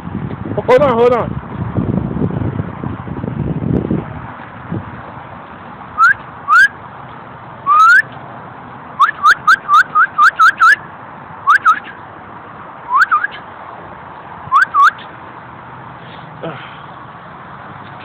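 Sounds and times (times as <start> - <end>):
person whistling: 6.0 - 6.7, 7.7 - 8.1, 9.0 - 10.8, 11.5 - 12.0, 12.9 - 13.4, 14.5 - 15.0.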